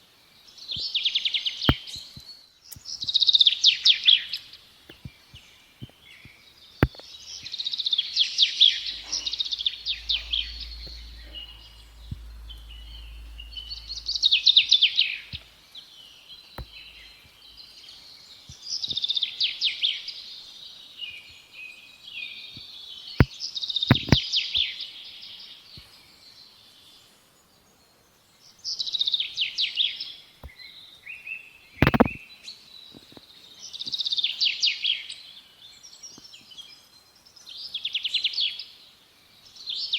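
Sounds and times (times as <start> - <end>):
sharp clicks: 31.8 - 32.2.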